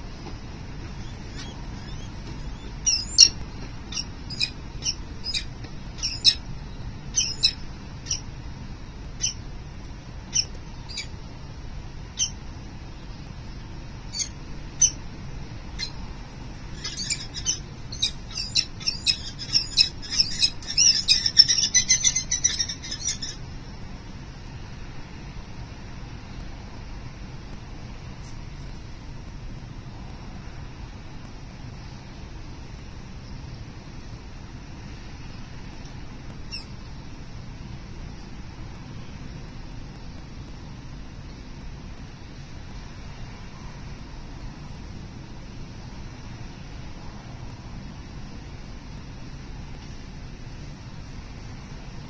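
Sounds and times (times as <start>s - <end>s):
low background rumble: 0.0s - 52.0s
falcons calling: 0.8s - 6.4s, 7.2s - 8.3s, 16.8s - 23.4s.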